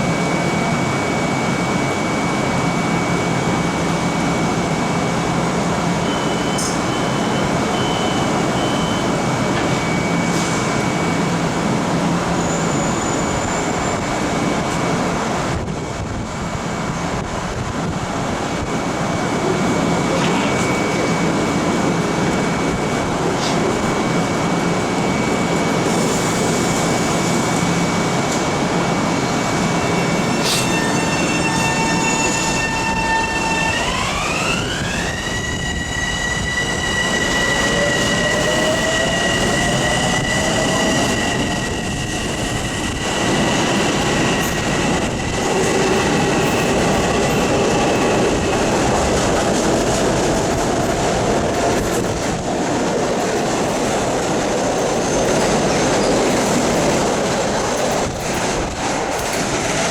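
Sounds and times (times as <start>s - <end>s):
electric train running noise: 18.7s - 59.9s.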